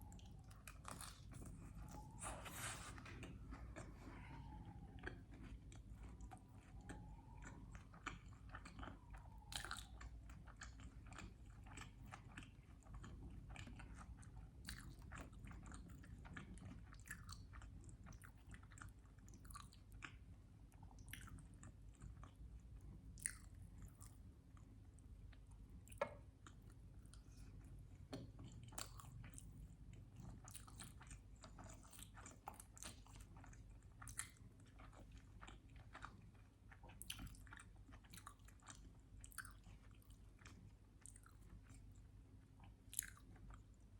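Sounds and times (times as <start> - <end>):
chewing and biting food: 0.0 - 43.9.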